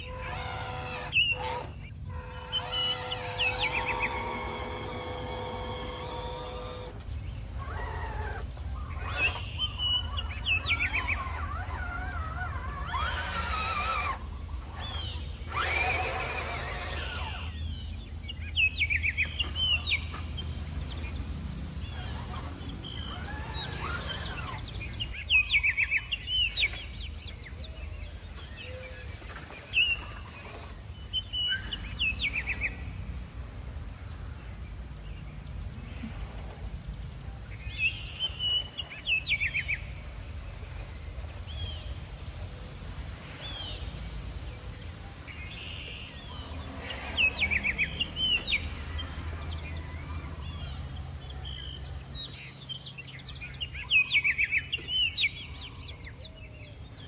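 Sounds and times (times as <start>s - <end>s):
birds chirping in quick trills: 0.0s - 42.5s.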